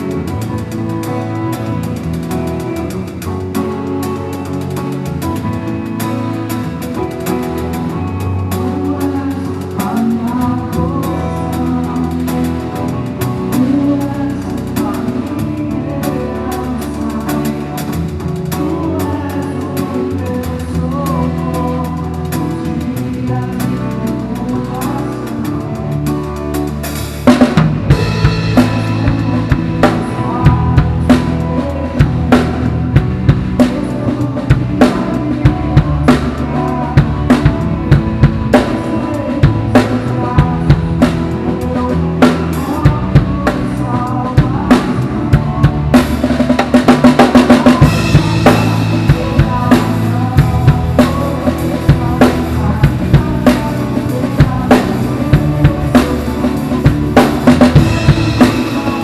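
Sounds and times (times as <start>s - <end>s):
drum kit playing: 0.0s - 59.0s
worship song with bass and guitar: 0.0s - 59.0s.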